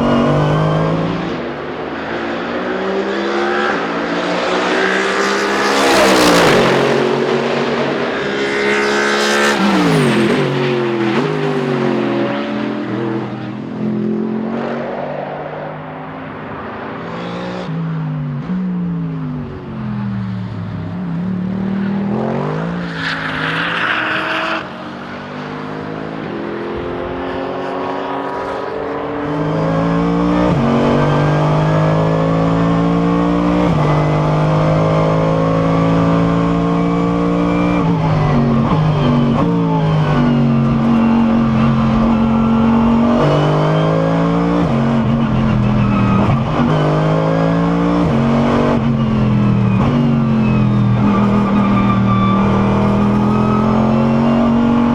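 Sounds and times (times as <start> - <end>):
race car engine revving: 0.0 - 17.8, 20.2 - 54.9.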